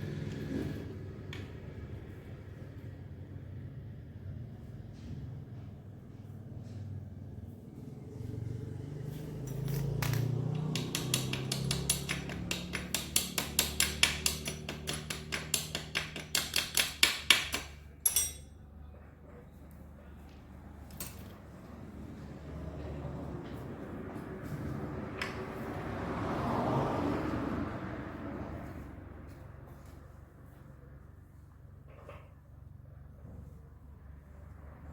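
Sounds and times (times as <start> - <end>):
rapid hammer taps: 10.5 - 17.8.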